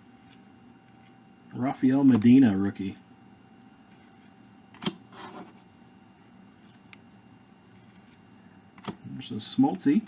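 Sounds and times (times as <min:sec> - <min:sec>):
soft card rustle: 0:00.0 - 0:01.2, 0:03.8 - 0:05.9, 0:06.5 - 0:08.9.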